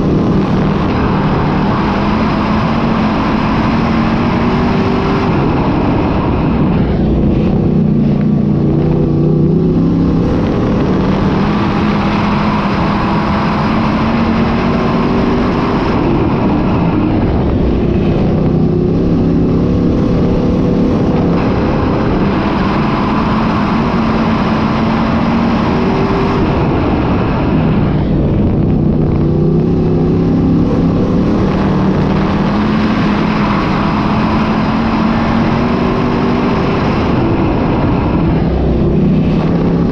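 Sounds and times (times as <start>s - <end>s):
race car engines: 0.0s - 39.9s.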